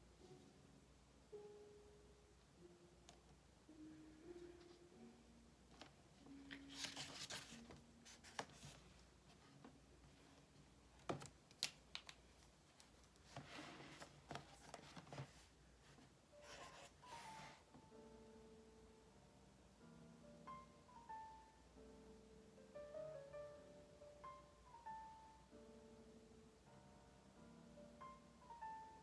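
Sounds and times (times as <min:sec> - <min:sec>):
faint piano music: 0:00.0 - 0:29.0
paper pages rustling: 0:05.8 - 0:09.7, 0:11.0 - 0:17.6.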